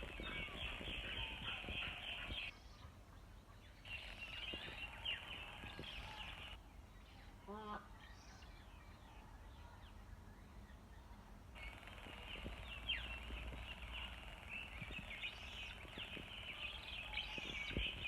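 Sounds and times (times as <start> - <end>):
low wind-like rumble: 0.0 - 2.5
birds chirping: 0.0 - 18.0.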